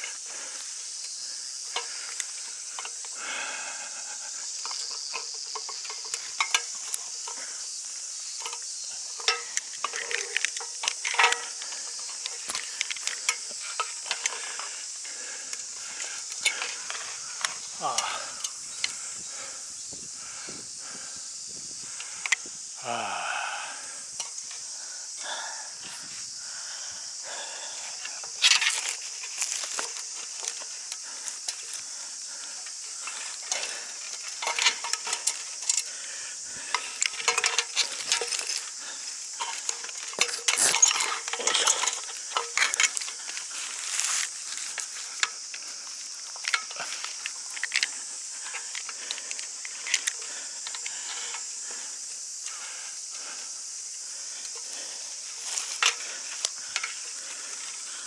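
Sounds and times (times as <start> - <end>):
rustling and crackling: 0.0 - 22.8, 23.8 - 58.0
steady high hiss: 0.0 - 58.0.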